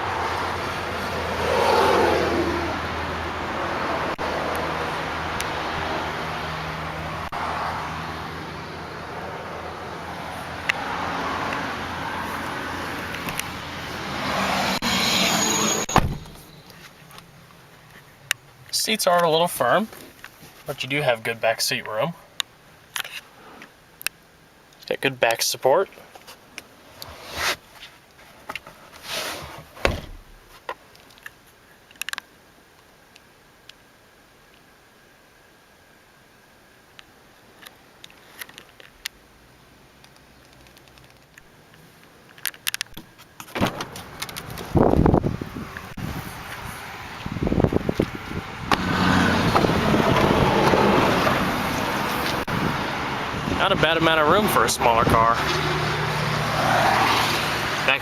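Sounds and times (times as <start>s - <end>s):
road traffic noise: 0.0s - 34.8s, 35.5s - 58.0s
car door thumping shut: 15.9s - 16.5s, 29.8s - 30.4s, 43.6s - 44.0s
sharp thump: 15.9s - 16.5s.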